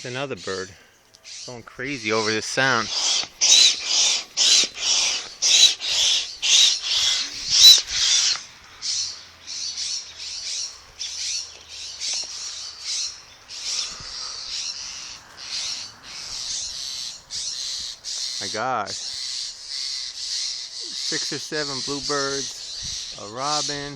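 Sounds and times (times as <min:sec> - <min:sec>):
hand air pump squeaky hiss: 0:02.2 - 0:08.4.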